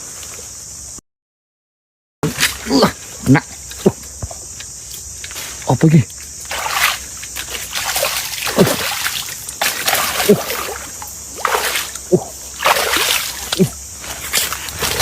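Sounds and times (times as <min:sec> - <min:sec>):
water splashing with bloop: 0:06.4 - 0:15.0.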